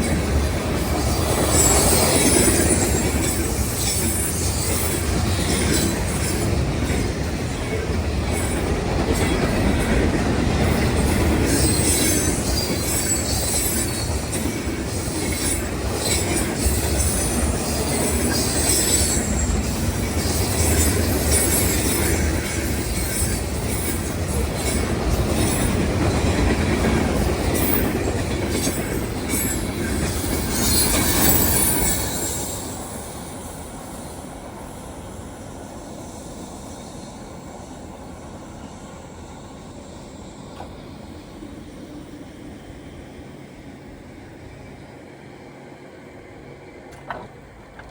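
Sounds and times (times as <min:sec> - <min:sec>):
train wheels rumbling on rail: 0:00.0 - 0:47.9
high wheel squeals: 0:01.0 - 0:06.5, 0:10.8 - 0:26.4, 0:27.5 - 0:34.8.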